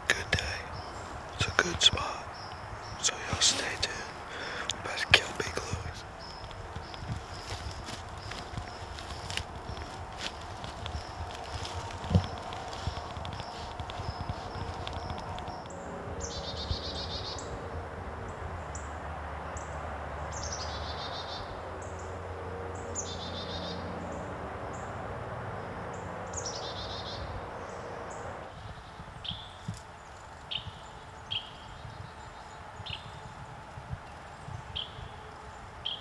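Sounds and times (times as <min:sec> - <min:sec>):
steady background hiss: 0:00.0 - 0:15.4
songbirds trilling: 0:00.0 - 0:36.0.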